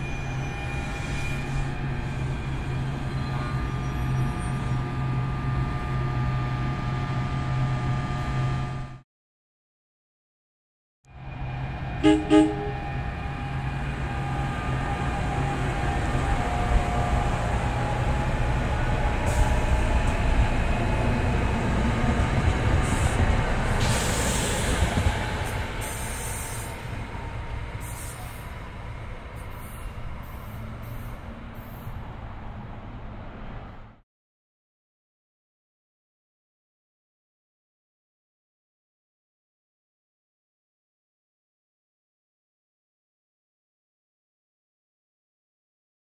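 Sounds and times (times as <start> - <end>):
train wheels rumbling on rail: 11.2 - 33.9.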